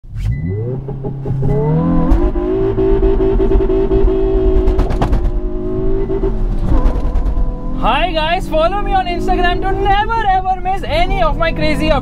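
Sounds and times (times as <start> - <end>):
car engine revving: 0.1 - 12.0.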